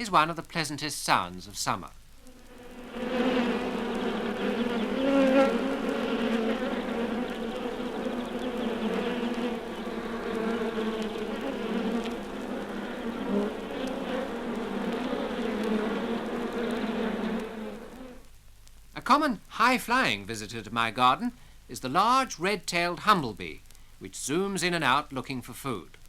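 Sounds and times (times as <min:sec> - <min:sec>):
honeybee hive buzzing: 0:02.2 - 0:18.3.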